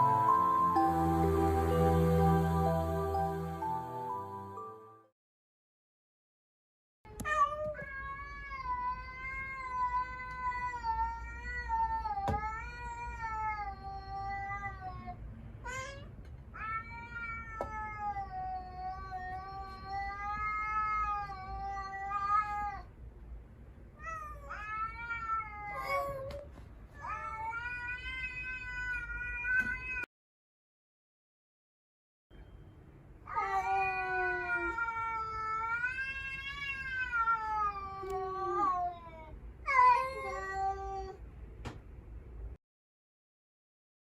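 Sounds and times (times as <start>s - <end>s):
cat yowling: 33.3s - 41.2s.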